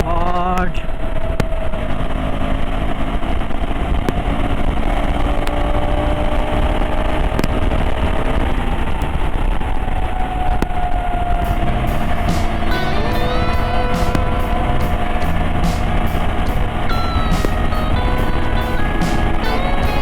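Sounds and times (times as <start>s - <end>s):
motorcycle engine running hard: 11.4s - 20.0s.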